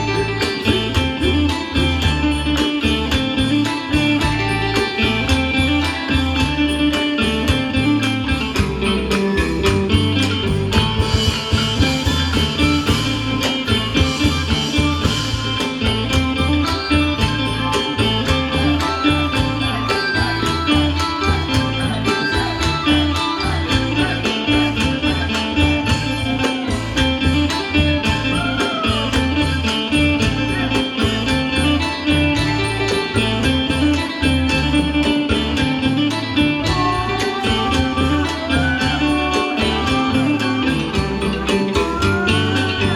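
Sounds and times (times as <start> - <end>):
drum and percussion beat: 0.0 - 42.9
instrumental folk ensemble: 0.0 - 42.9.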